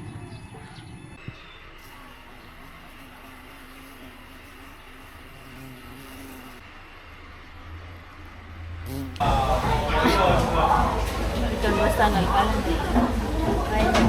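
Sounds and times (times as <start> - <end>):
vehicle engine and road noise: 6.6 - 14.0.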